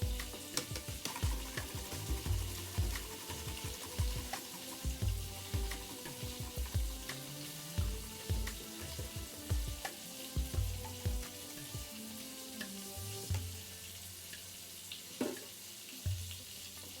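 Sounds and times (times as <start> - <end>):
background music with low beat: 0.0 - 14.5, 15.2 - 17.0
food sizzling in a frying pan: 0.0 - 17.0.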